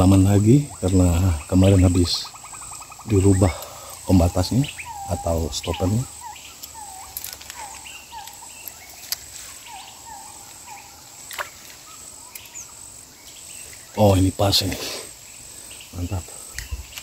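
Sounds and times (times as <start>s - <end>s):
bird chirping: 0.0s - 17.0s
insects trilling: 0.0s - 17.0s.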